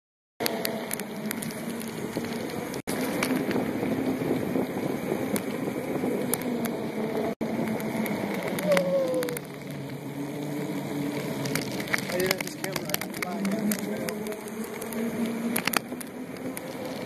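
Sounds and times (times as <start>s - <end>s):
bicycle tyre noise: 0.4s - 17.0s
wind noise: 0.4s - 17.0s
clicks and rattles: 11.5s - 17.0s.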